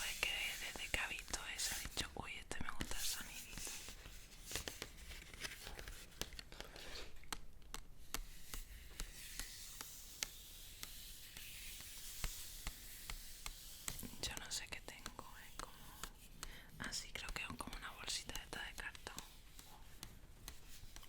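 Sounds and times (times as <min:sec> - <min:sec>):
paper rustling and crinkling: 0:02.8 - 0:07.4.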